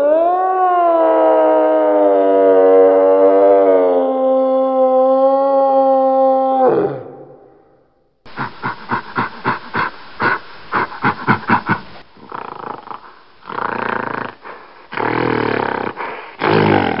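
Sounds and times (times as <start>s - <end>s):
gorilla grunting and growling: 8.3s - 17.0s.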